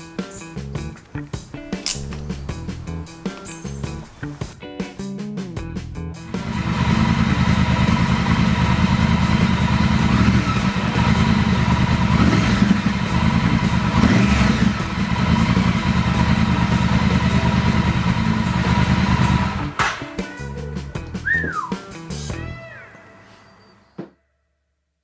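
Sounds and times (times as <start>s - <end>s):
motorcycle engine idling: 6.3s - 19.8s.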